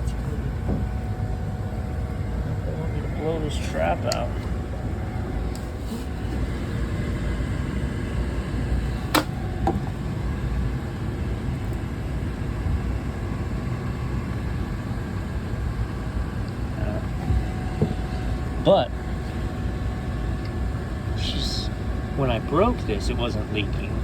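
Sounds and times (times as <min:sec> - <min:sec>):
low machinery rumble: 0:00.0 - 0:24.0.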